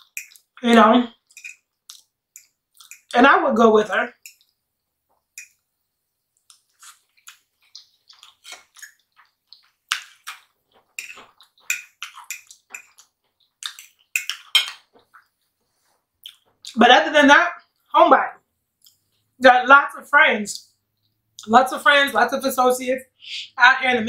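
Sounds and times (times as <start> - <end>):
person chewing food: 0.0 - 3.1, 4.1 - 16.8, 18.8 - 19.4.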